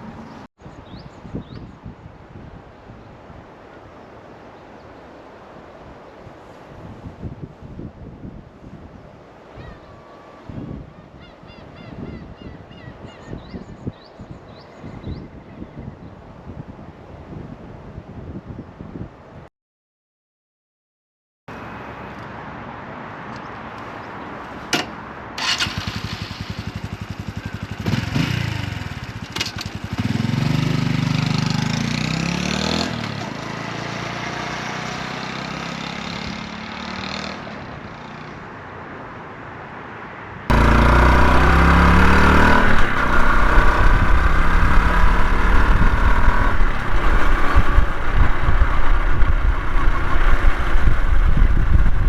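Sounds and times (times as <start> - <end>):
wind buffeting microphone: 6.2 - 19.4, 40.5 - 52.0
motorcycle engine starting and idling: 25.4 - 32.1, 40.5 - 52.0
motorcycle engine revving: 25.4 - 37.4, 40.5 - 52.0.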